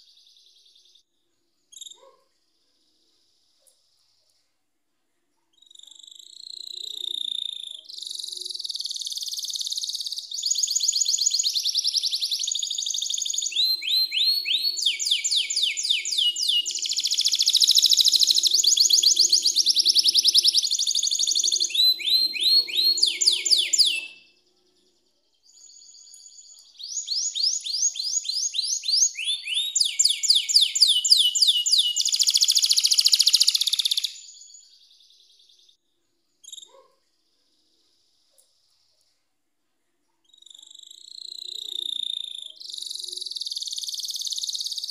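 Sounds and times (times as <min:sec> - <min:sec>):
canary singing: 0:05.5 - 0:24.5, 0:25.4 - 0:35.7, 0:40.3 - 0:44.9.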